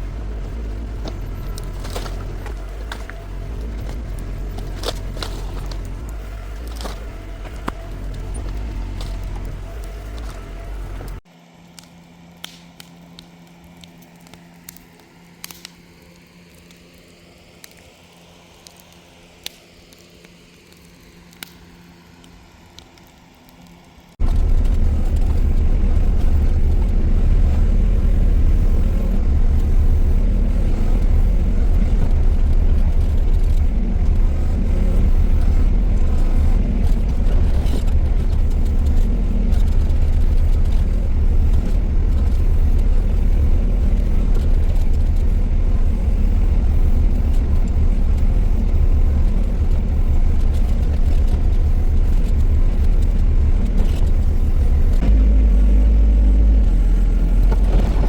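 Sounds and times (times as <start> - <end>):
excavator diesel engine rumbling: 0.0 - 11.2, 24.2 - 58.0.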